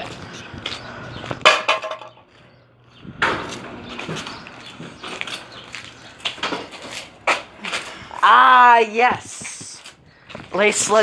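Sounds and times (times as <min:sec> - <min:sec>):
knocks and clatters: 0:01.3 - 0:02.2.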